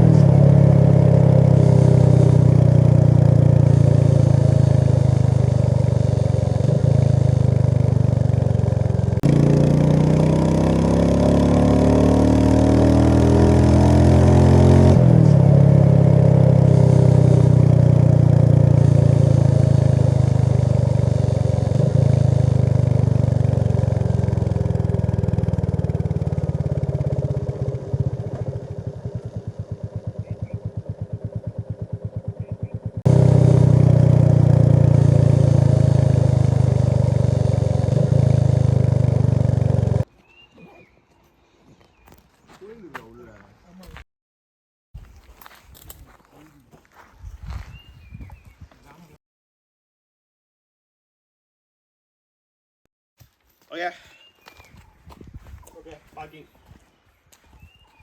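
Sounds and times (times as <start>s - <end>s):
vehicle engine running: 0.0s - 40.1s.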